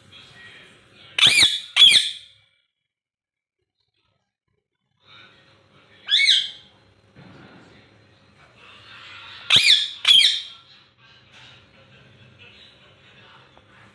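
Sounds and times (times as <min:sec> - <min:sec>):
parrot squawking: 0:01.2 - 0:02.4, 0:06.0 - 0:06.7, 0:09.4 - 0:10.6.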